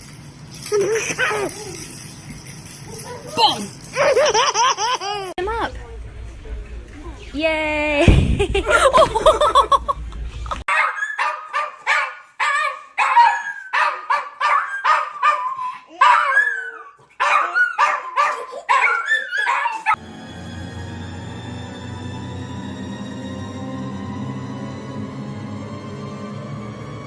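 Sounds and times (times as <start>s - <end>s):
dog barking and whining: 2.8s - 3.7s, 10.7s - 20.0s
music: 20.0s - 27.0s.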